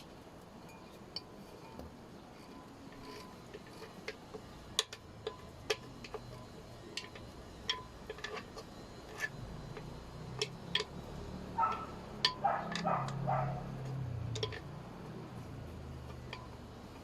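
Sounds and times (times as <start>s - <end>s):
light clicks and clinks: 11.6s - 17.0s.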